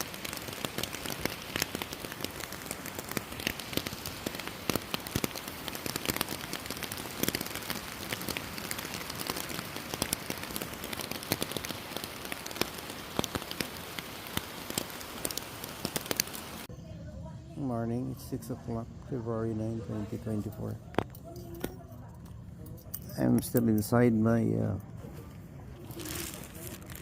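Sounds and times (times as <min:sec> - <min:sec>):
sharp rain drop hits: 0:00.0 - 0:16.7
steady rain hiss: 0:00.0 - 0:16.7.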